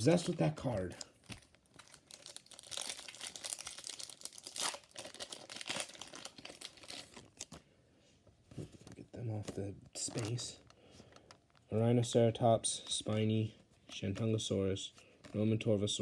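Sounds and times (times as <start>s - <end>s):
foil pack crinkling and tearing: 0.0s - 7.6s.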